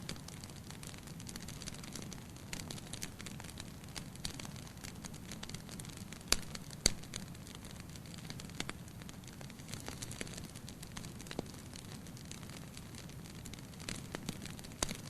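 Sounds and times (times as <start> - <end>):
loud pops from fire: 0.0 - 15.0
wood fire crackling: 0.0 - 15.0.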